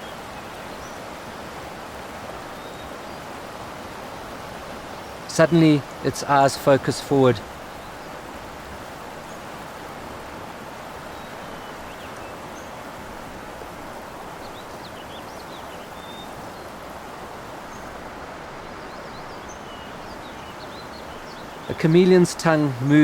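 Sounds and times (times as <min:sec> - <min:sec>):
steady outdoor hiss: 0:00.0 - 0:23.0.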